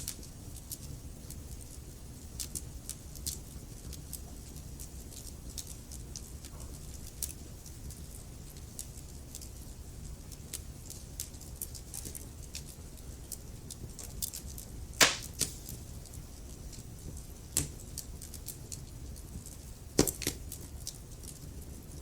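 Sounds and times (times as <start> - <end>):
wood fire crackling: 9.4 - 22.0
loud sharp pops of fire: 15.0 - 15.9.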